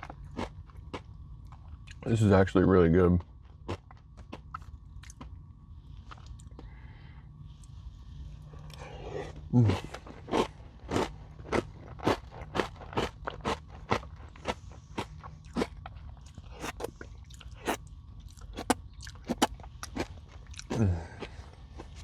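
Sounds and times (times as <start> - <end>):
crunching and chewing: 0.0 - 2.0, 3.5 - 5.3, 10.9 - 20.8.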